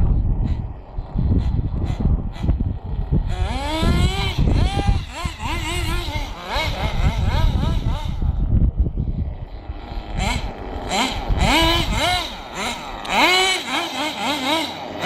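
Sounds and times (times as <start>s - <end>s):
small engine revving: 0.0s - 15.0s.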